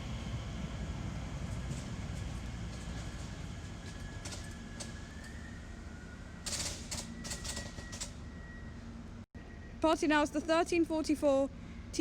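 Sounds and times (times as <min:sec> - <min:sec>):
train low rumble: 0:00.0 - 0:12.0.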